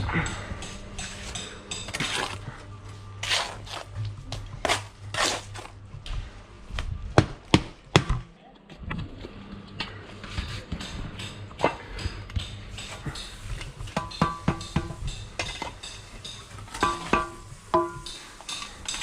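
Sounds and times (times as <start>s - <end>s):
trowel scraping mortar: 1.1s - 2.6s, 3.2s - 4.0s, 4.6s - 5.8s.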